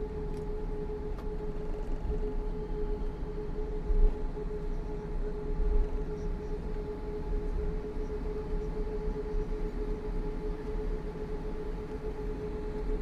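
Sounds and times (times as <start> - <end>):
steady whine: 0.0 - 13.0.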